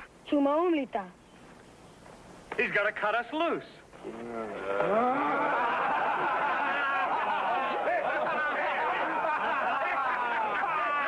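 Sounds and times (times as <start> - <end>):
crowd shouting and chattering: 4.4 - 11.0
crowd laughter: 4.6 - 11.0.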